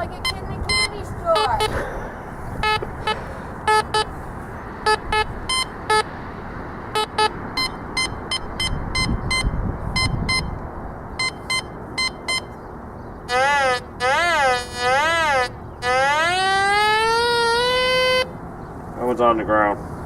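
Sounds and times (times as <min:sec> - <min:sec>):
metal detector beeps: 0:00.0 - 0:01.7, 0:02.6 - 0:04.1, 0:04.8 - 0:06.1, 0:07.0 - 0:10.6, 0:11.2 - 0:12.6.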